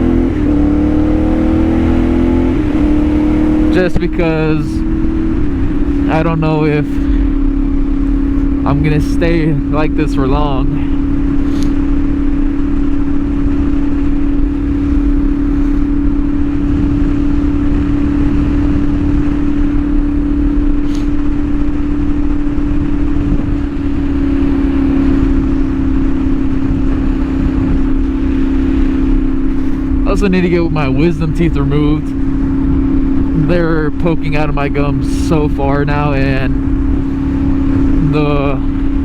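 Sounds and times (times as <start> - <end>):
motorcycle engine droning: 0.0 - 39.0.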